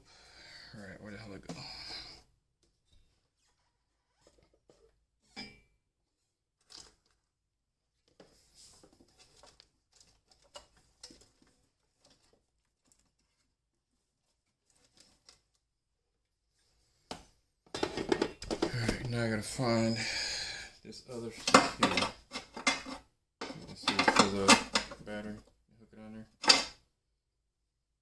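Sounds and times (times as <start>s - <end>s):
hands handling small parts: 21.4s - 25.0s.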